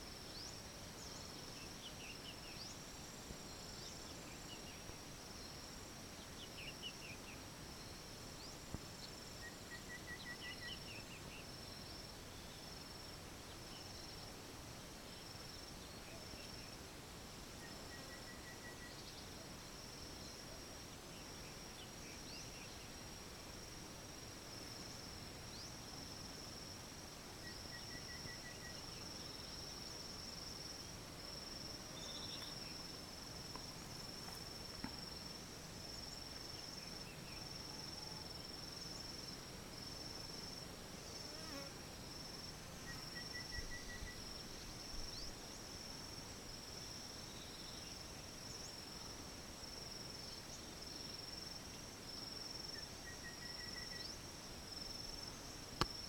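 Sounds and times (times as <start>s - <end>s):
rapid lower insect notes: 0.0s - 56.0s
insects chirring: 14.9s - 56.0s.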